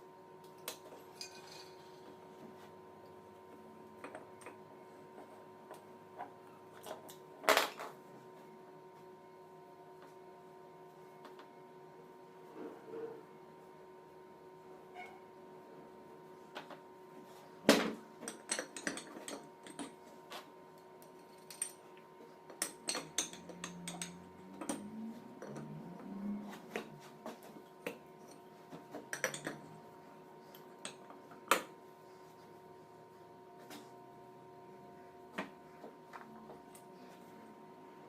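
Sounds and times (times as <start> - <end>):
faint electrical hum: 0.0 - 38.0
metal tools clinking and knocking: 1.1 - 2.0, 18.2 - 20.0, 21.2 - 21.8, 22.5 - 25.7, 29.1 - 29.8.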